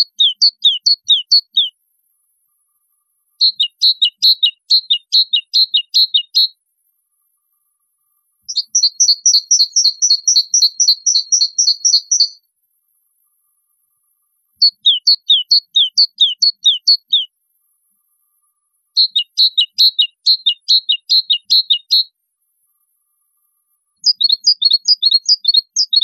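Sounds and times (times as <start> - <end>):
small bird chirping: 0.0 - 26.0.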